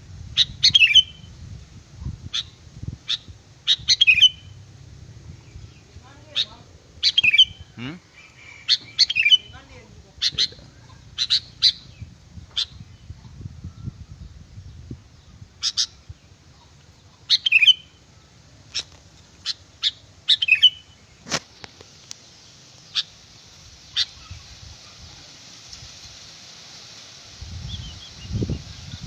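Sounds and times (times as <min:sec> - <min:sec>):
faint steady hiss: 0:00.0 - 0:29.0
bird chirping: 0:00.4 - 0:01.3, 0:02.0 - 0:04.6, 0:05.3 - 0:21.2, 0:22.3 - 0:23.2, 0:27.5 - 0:29.0.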